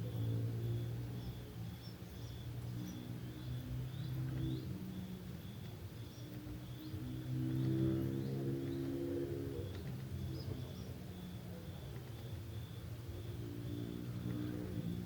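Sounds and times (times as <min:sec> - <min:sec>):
cricket chirping: 0:09.6 - 0:15.0.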